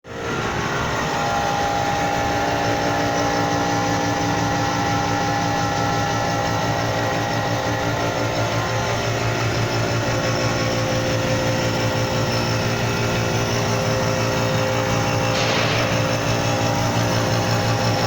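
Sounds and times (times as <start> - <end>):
milling machine cutting steel: 10.6 - 18.0.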